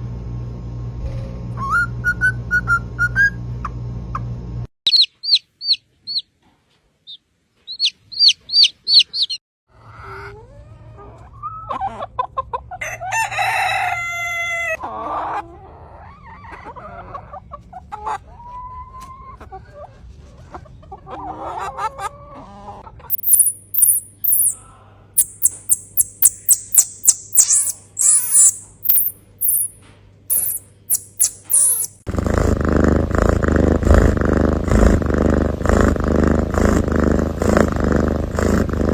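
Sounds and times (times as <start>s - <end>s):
rooster crowing: 12.8s - 14.8s
chickens clucking: 14.8s - 23.1s
high chirps: 23.1s - 24.6s, 25.2s - 32.0s.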